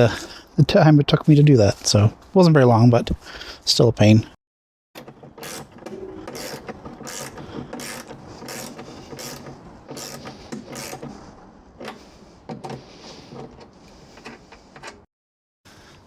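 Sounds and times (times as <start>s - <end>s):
ratchet clicking on metal: 5.4s - 5.7s, 6.3s - 11.0s.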